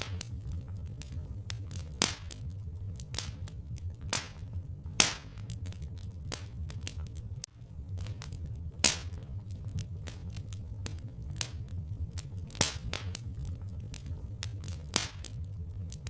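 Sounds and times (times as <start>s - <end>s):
low steady rumble: 0.0s - 16.0s
wood fire crackling and popping: 0.0s - 16.0s.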